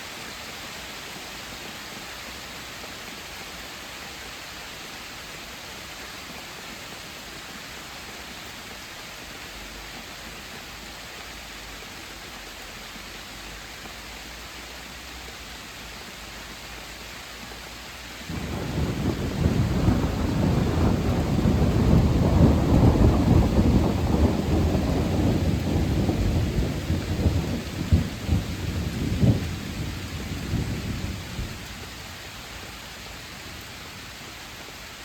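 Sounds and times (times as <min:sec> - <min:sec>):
heavy rain: 0:00.0 - 0:35.0
thunder rumbling: 0:18.3 - 0:31.9.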